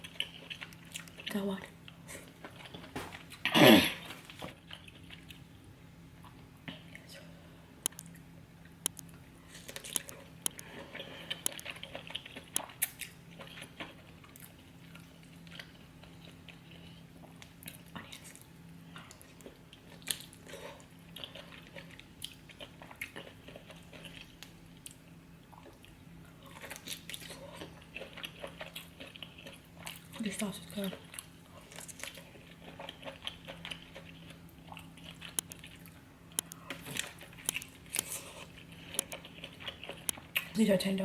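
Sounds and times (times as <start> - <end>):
wet chewing and biting: 0.0 - 3.5, 7.8 - 8.2, 8.8 - 30.2, 31.0 - 40.6
sharp clicks and smacks: 7.8 - 8.1, 8.8 - 10.7, 35.3 - 35.7, 36.3 - 38.2.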